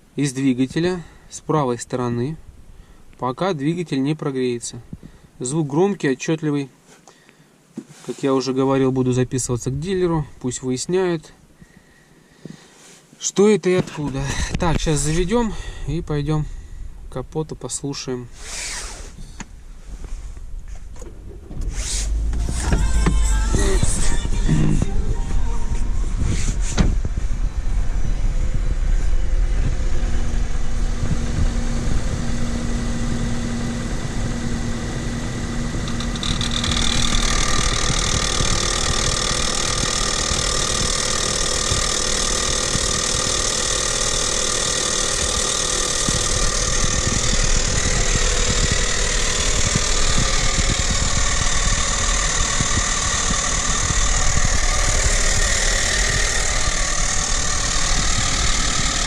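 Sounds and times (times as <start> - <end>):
car engine idling: 20.9 - 26.2, 27.0 - 59.0
engine grinding and whistling: 21.1 - 59.0.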